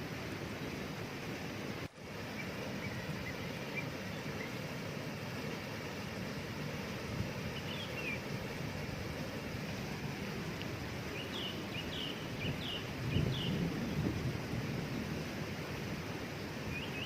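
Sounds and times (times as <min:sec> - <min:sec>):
waterfall rushing: 0:00.0 - 0:17.0
small bird chirping: 0:07.5 - 0:08.2.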